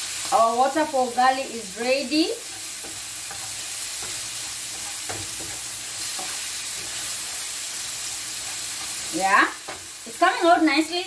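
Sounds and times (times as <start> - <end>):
fish sizzling in a pan: 0.0 - 11.0
wooden spoon scraping a pan: 1.8 - 10.7
spoon knocking on pan: 2.5 - 6.4.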